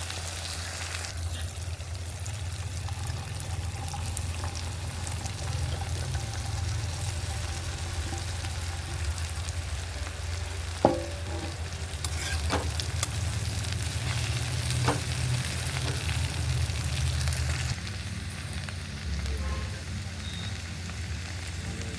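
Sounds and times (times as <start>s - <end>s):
food sizzling in a pan: 0.0s - 21.9s
light scrapes: 11.0s - 12.8s.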